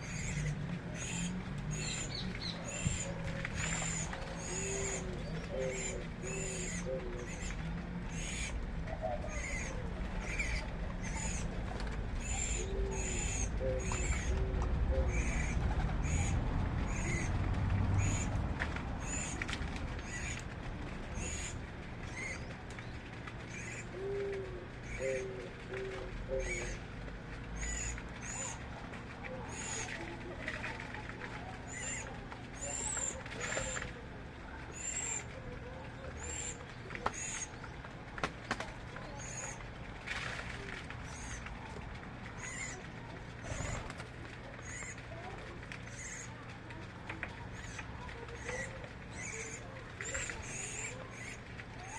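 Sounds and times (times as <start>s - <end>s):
low hooting bird notes: 20.0s - 37.9s.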